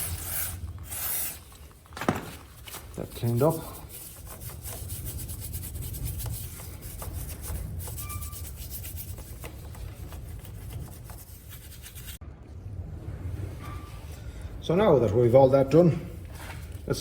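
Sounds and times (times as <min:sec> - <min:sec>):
scrubbing strokes cleaning metal: 0:03.0 - 0:12.2
steady low rumble: 0:12.2 - 0:17.0.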